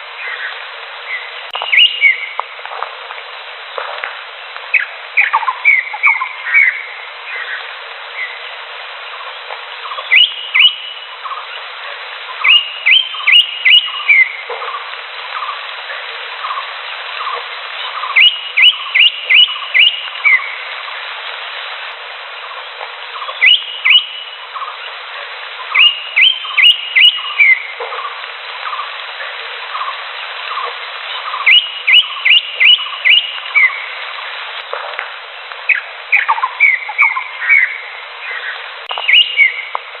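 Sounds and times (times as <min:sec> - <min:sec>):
lower bird chirps: 0:00.0 - 0:02.4, 0:04.7 - 0:11.6, 0:12.2 - 0:15.6, 0:16.4 - 0:20.7, 0:22.3 - 0:25.0, 0:25.6 - 0:29.0, 0:29.7 - 0:33.9, 0:35.6 - 0:39.8
steady hiss: 0:00.0 - 0:40.0
bird singing whistled notes: 0:00.2 - 0:02.4, 0:04.7 - 0:07.6, 0:09.8 - 0:11.4, 0:12.3 - 0:14.8, 0:17.2 - 0:20.6, 0:23.2 - 0:24.7, 0:25.6 - 0:27.7, 0:30.5 - 0:33.9, 0:35.7 - 0:39.8.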